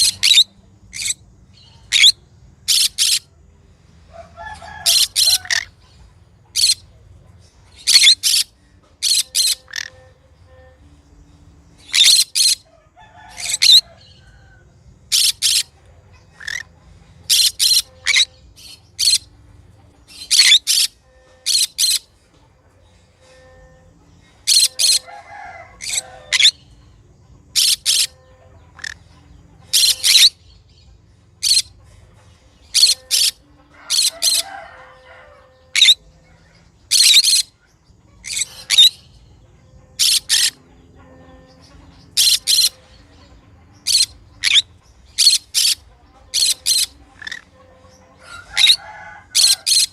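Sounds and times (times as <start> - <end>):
parrot shrill calls: 0.0 - 1.2, 1.8 - 3.2, 4.3 - 5.8, 6.5 - 6.8, 7.7 - 10.0, 11.8 - 14.2, 15.1 - 15.7, 16.4 - 16.7, 17.3 - 19.3, 20.1 - 22.1, 24.4 - 26.6, 27.5 - 28.2, 28.8 - 29.0, 29.7 - 30.4, 31.4 - 31.7, 32.7 - 36.0, 36.9 - 37.5, 38.2 - 39.1, 40.0 - 40.6, 42.1 - 42.8, 43.8 - 47.6, 48.2 - 49.9.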